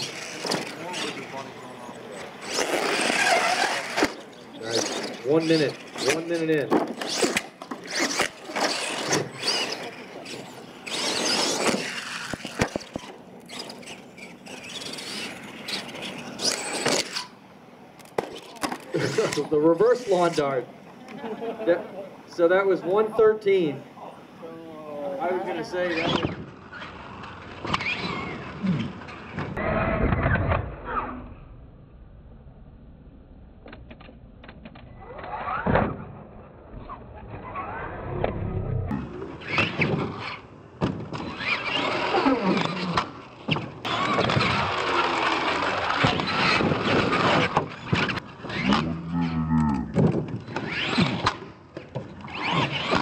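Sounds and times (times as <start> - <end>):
toy truck motor whining: 2.4 - 17.3, 41.2 - 51.4.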